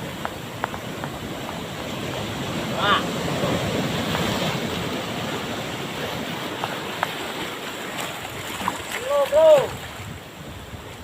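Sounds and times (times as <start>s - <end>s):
waves breaking on beach: 0.0s - 11.0s.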